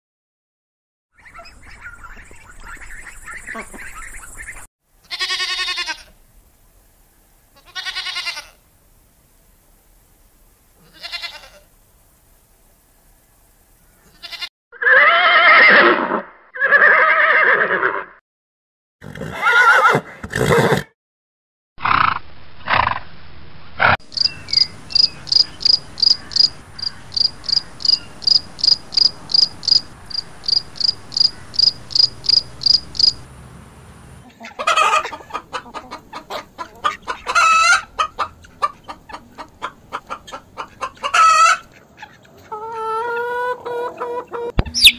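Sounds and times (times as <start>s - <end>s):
hens clucking: 1.2s - 4.7s, 23.8s - 33.2s, 34.1s - 44.9s
bleat-like animal calls: 5.0s - 6.2s, 7.6s - 8.6s, 10.8s - 11.7s, 14.1s - 18.1s
rapid high chirping: 24.0s - 33.2s, 44.5s - 44.9s.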